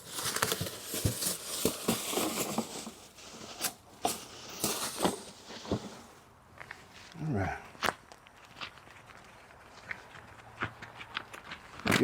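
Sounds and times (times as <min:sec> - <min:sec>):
packaging and paper crinkling: 0:00.0 - 0:06.1.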